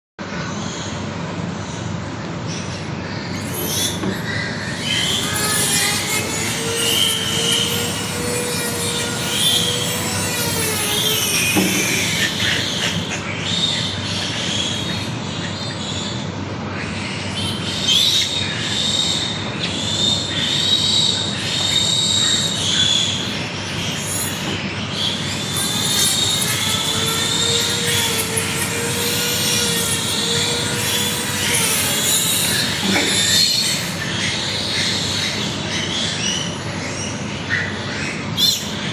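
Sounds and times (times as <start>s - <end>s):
piglet squealing: 3.4s - 13.2s, 17.4s - 19.3s, 20.0s - 36.5s, 38.4s - 38.9s.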